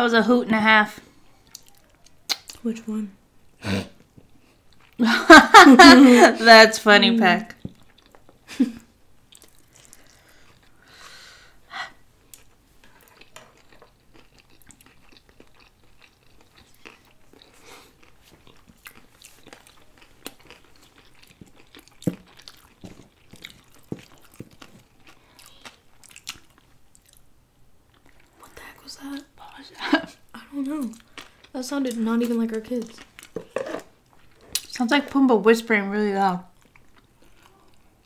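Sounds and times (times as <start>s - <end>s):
wet chewing: 1.3s - 2.7s, 7.5s - 8.4s, 9.3s - 10.8s, 12.3s - 27.3s, 36.5s - 38.0s
mouth clicks: 1.5s - 2.6s.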